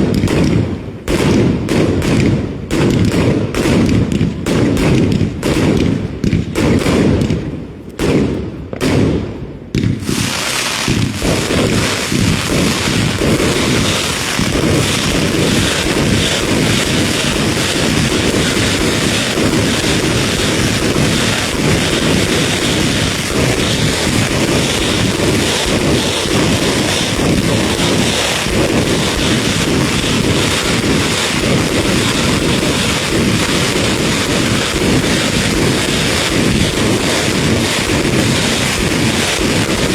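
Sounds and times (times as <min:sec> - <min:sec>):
fireworks crackling bangs: 0:00.0 - 0:39.9
fireworks dull thumps: 0:09.7 - 0:37.4.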